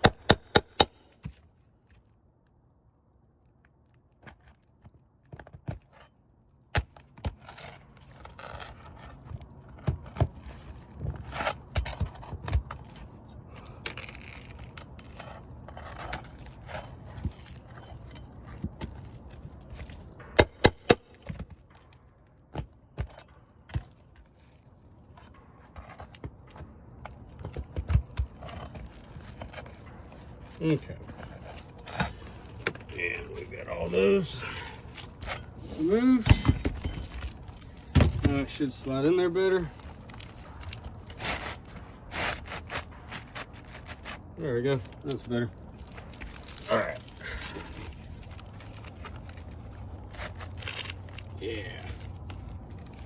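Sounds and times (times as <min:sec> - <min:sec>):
metal nail clicks and knocks: 0:00.0 - 0:01.1, 0:20.3 - 0:21.6
scraping: 0:07.3 - 0:21.9, 0:23.0 - 0:53.0.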